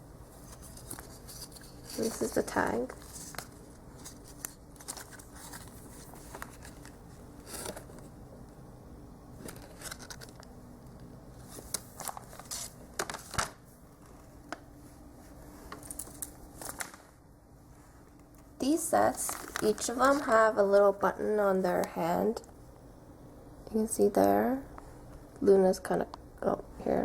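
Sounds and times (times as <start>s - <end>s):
plastic packaging rustling: 0.3s - 8.2s, 9.4s - 17.2s, 18.8s - 21.0s.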